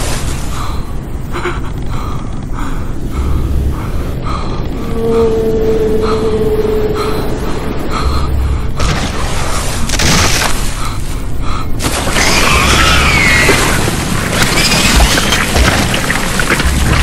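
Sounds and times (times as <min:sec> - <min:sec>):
wind and waves rushing: 0:00.0 - 0:17.0
wavering high tones: 0:04.8 - 0:08.5.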